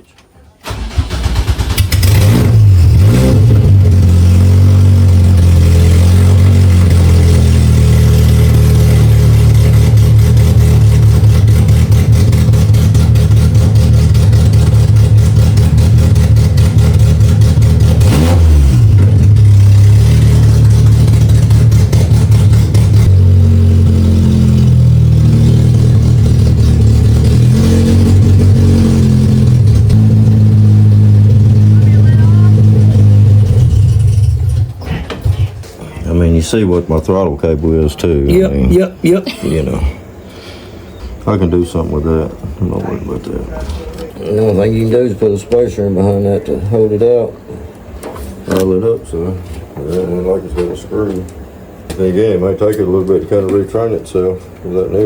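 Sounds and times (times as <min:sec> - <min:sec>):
race car engine running: 0:00.7 - 0:35.6.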